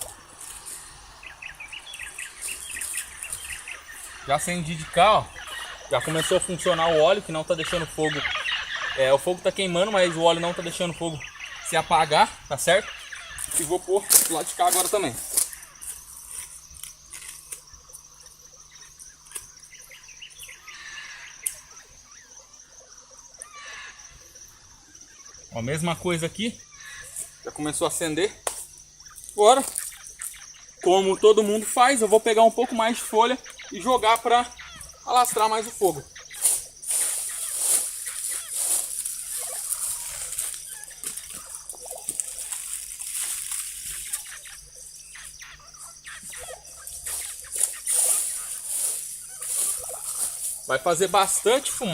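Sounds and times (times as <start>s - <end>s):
dry leaves rustling: 0.0s - 10.3s, 12.9s - 18.2s, 29.1s - 30.4s, 35.0s - 51.9s
bird chirps: 0.0s - 51.9s
high-pitched insect drone: 0.0s - 51.9s.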